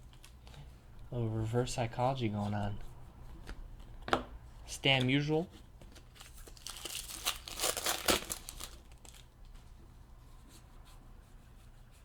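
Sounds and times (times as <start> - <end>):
plastic packaging crinkling: 5.9 - 9.4.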